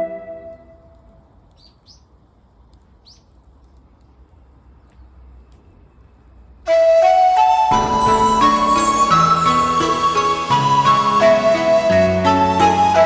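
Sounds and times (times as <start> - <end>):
music: 0.0 - 0.8, 6.7 - 13.0
faint outdoor background noise: 0.0 - 13.0
bird chirping: 1.5 - 2.2, 2.9 - 4.2.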